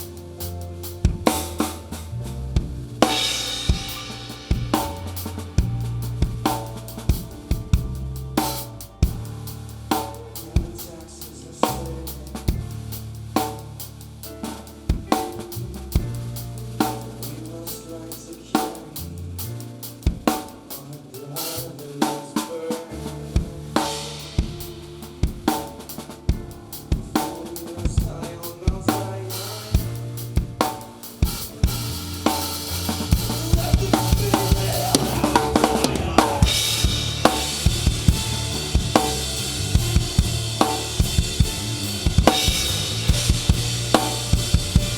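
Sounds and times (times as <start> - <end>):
live band playing: 0.0 - 44.9
snare and bass drum hits: 3.0 - 9.2, 30.4 - 44.9
crashing cymbals: 3.1 - 5.5, 31.3 - 44.9.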